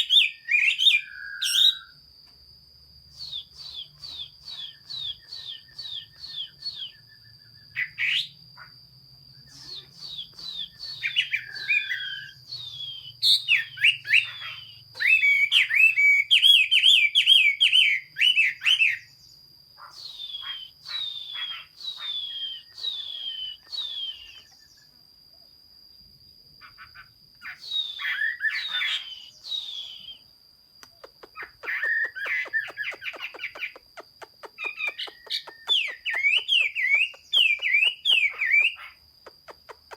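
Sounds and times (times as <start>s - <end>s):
bird singing whistled phrases: 0.0s - 2.0s, 3.1s - 8.4s, 9.4s - 19.2s, 19.9s - 24.9s, 27.4s - 30.3s, 31.4s - 33.8s, 34.4s - 39.9s.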